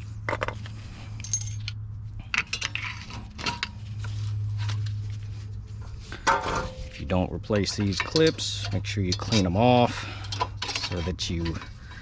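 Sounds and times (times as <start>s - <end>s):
brake pads clinking and rattling: 1.2s - 3.8s, 6.1s - 12.0s.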